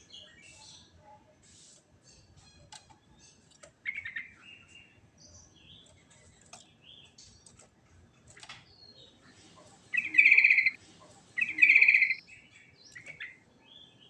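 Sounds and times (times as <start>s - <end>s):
bird singing chirps and whistles: 10.0s - 10.8s, 11.4s - 13.8s.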